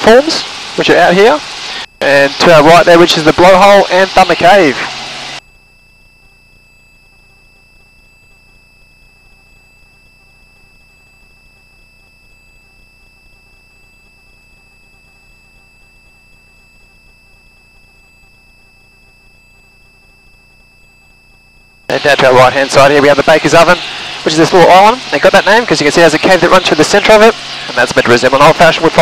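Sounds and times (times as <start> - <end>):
electronic hiss: 0.0 - 5.4, 21.9 - 29.0
high thin whine: 0.0 - 6.3, 15.4 - 29.0
low hum: 0.0 - 29.0.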